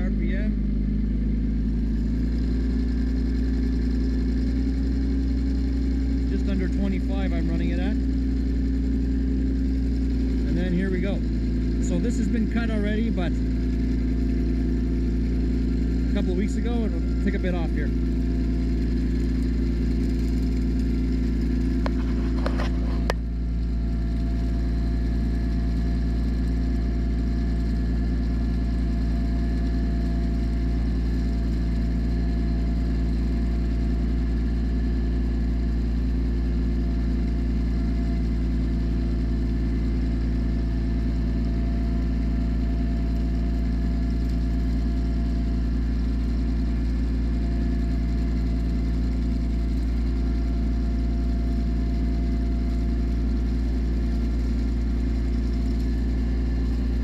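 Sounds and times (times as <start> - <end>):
tractor engine running: 0.0 - 57.0
mower clatter: 14.7 - 23.3.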